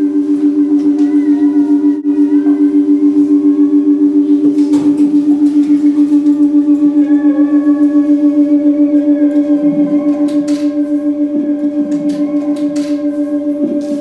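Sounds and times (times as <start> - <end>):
electronic drone with tremolo: 0.0 - 14.0.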